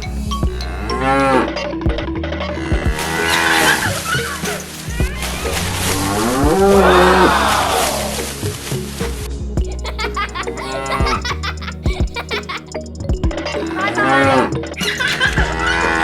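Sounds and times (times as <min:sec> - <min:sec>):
background music: 0:00.0 - 0:16.0
drawn-out animal calls: 0:02.4 - 0:08.3, 0:13.6 - 0:16.0.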